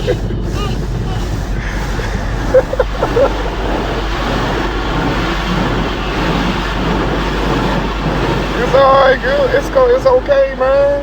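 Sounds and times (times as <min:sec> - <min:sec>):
car wash water and machinery: 0:00.0 - 0:11.0.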